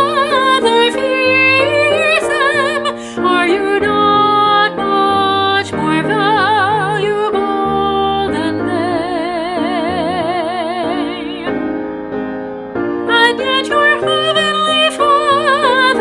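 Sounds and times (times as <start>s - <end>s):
woman singing with vibrato: 0.0s - 11.6s, 13.1s - 16.0s
keyboard chords: 0.0s - 16.0s.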